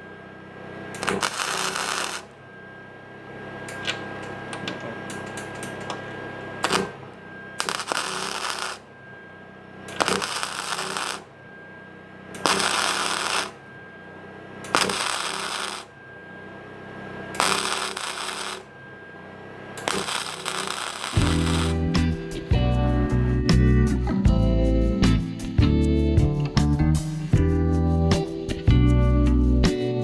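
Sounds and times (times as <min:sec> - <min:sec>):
steady low hum: 0:00.0 - 0:26.4
welder arc crackling: 0:01.0 - 0:02.4, 0:05.1 - 0:08.9, 0:09.9 - 0:11.3, 0:12.4 - 0:13.6, 0:14.6 - 0:15.9, 0:17.4 - 0:18.7, 0:19.8 - 0:22.1.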